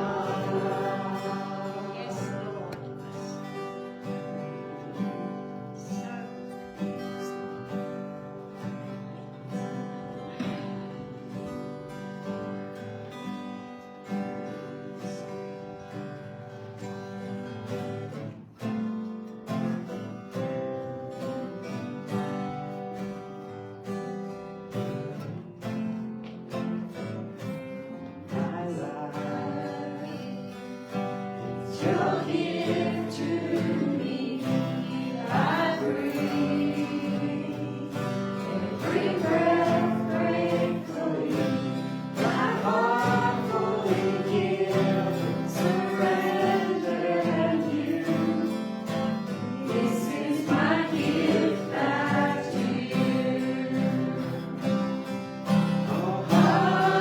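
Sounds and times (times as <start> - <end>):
voices singing worship song: 0.0 - 8.8, 27.8 - 57.0
strummed acoustic guitar: 0.0 - 57.0.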